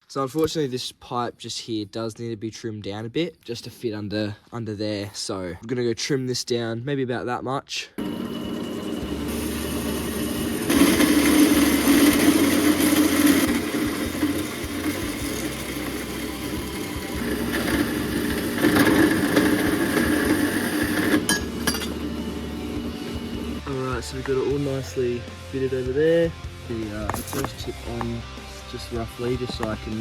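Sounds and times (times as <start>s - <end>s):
power tool cutting pipe: 8.0s - 23.6s.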